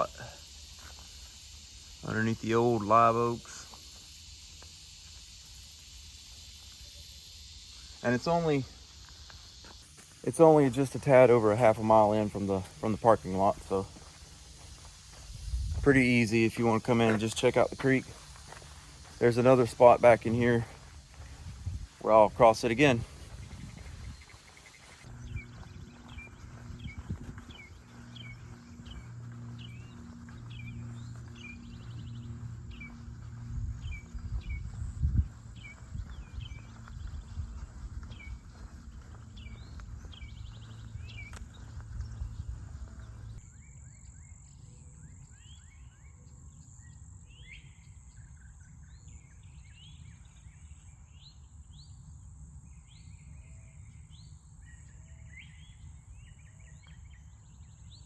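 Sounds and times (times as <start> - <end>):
high insect drone: 0.0 - 58.0
birds calling: 6.0 - 46.1.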